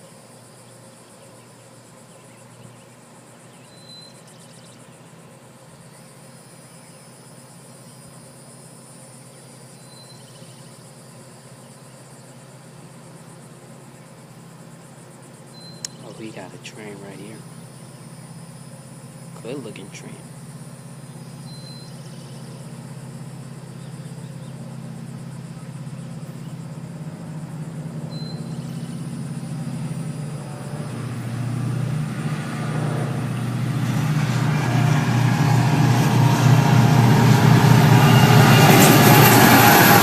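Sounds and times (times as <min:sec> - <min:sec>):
diesel locomotive engine drone: 0:00.0 - 0:40.0
wheel and rail noise: 0:20.8 - 0:40.0.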